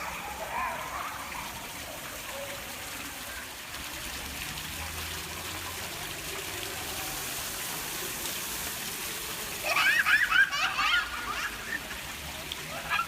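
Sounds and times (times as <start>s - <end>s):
fountain water splashing: 0.0s - 13.0s
child crying out: 9.6s - 11.7s.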